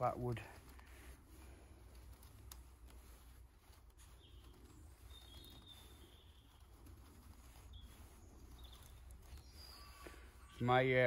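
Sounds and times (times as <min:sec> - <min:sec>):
high whistled bird calls: 0:04.0 - 0:11.0.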